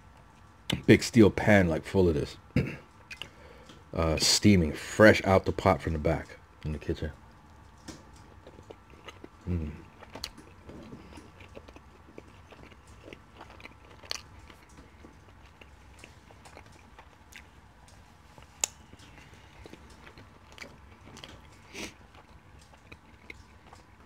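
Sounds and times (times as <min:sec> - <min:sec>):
person chewing food: 0:02.9 - 0:03.9, 0:07.2 - 0:24.0.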